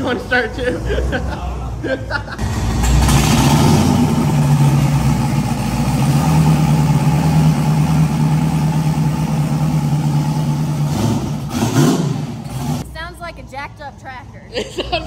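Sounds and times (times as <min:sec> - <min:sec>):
car engine idling lumpy: 0:02.4 - 0:10.9.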